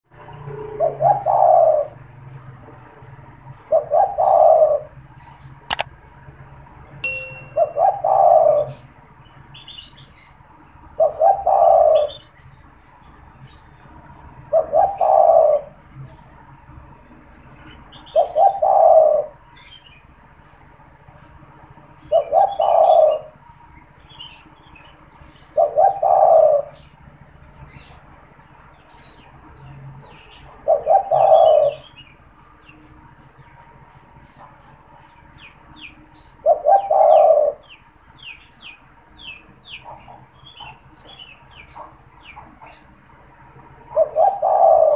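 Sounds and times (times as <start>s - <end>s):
small birds chirping faintly: 0.1s - 44.9s
dove cooing: 0.6s - 2.0s, 3.6s - 5.0s, 7.7s - 8.8s, 11.0s - 12.3s, 14.5s - 15.8s, 18.1s - 19.4s, 22.1s - 23.3s, 25.5s - 26.8s, 30.5s - 31.9s, 36.4s - 37.7s, 43.9s - 44.9s
sharp click: 5.7s - 5.9s
metallic ding: 7.0s - 8.2s.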